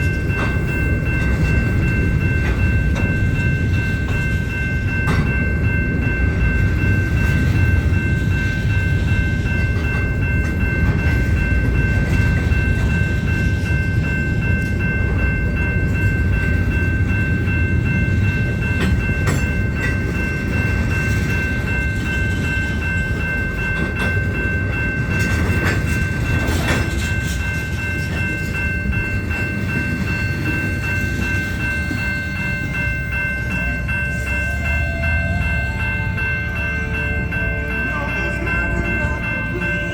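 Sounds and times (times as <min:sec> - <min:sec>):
crossing bell ringing: 0:00.0 - 0:39.9
train cars rumbling past: 0:00.0 - 0:39.9
train clanks: 0:00.0 - 0:39.9.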